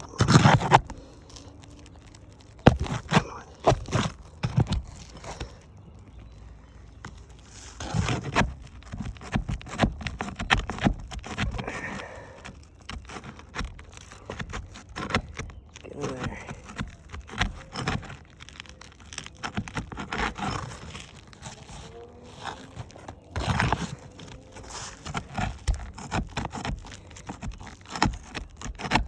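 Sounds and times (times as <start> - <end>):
roof shingles being pried up: 0.0 - 29.0.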